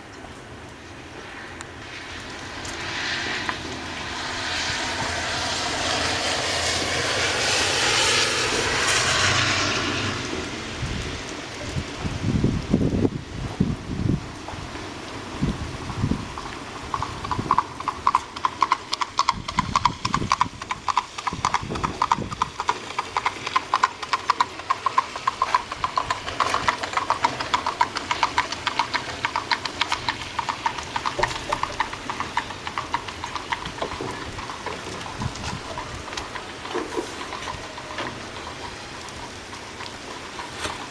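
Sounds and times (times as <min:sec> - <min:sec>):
horse hooves on hard road: 0:00.0 - 0:40.9
rain hissing: 0:00.0 - 0:40.9.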